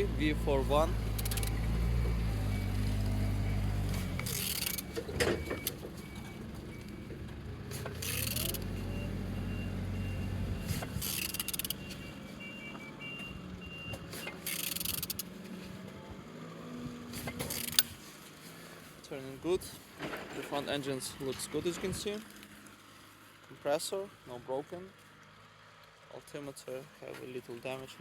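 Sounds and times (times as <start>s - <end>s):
wrench turning engine over: 0.2s - 1.8s, 3.9s - 6.3s, 7.7s - 8.8s, 10.8s - 11.9s, 14.1s - 15.4s, 17.1s - 18.0s.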